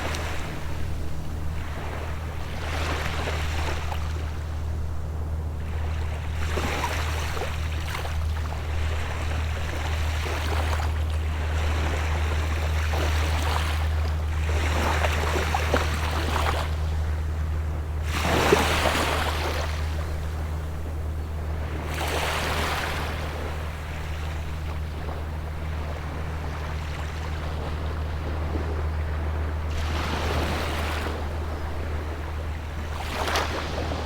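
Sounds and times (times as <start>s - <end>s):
small waves washing on sand: 25.8s - 34.0s.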